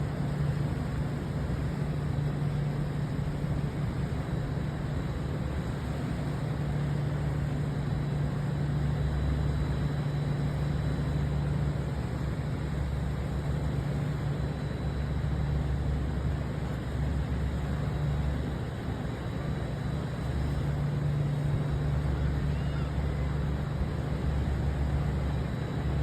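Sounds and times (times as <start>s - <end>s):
ship engines droning: 0.0s - 26.0s.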